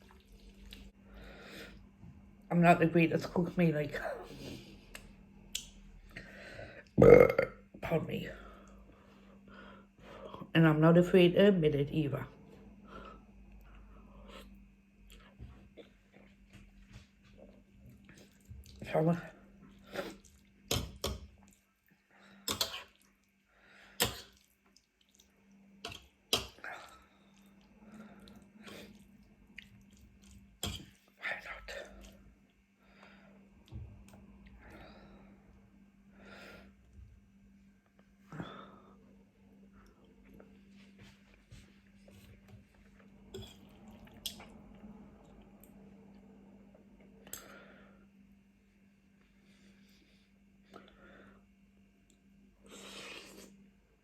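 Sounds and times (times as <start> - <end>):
quiet chewing: 0.0 - 1.0, 13.5 - 18.8, 19.6 - 23.4, 24.0 - 32.6, 39.8 - 46.3
faint steady hum: 0.0 - 54.0.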